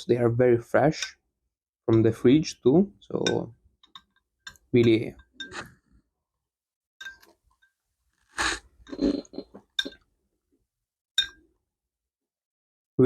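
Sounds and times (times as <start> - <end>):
slurping and chewing: 8.2 - 9.8.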